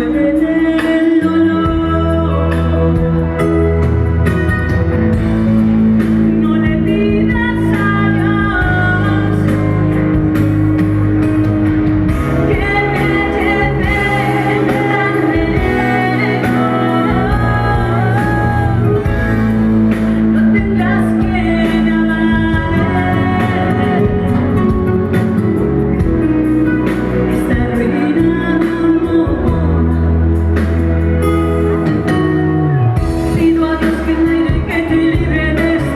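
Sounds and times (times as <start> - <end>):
woman singing: 0.0 - 3.4, 6.2 - 10.0, 12.2 - 25.4, 27.2 - 30.4, 33.1 - 35.9
bass chords: 0.0 - 35.9
guitar: 0.0 - 35.9.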